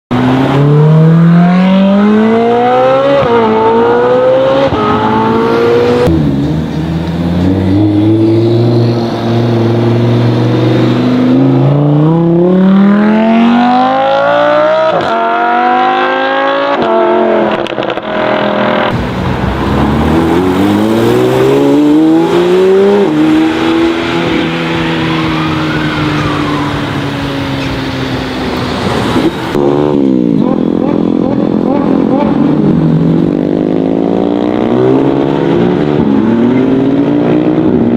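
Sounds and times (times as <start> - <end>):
sports car engines accelerating: 0.1 - 37.9.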